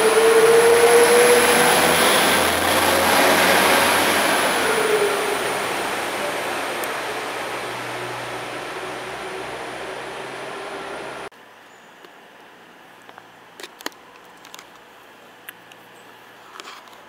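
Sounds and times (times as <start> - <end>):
train rumble with low hum: 0.0 - 11.3.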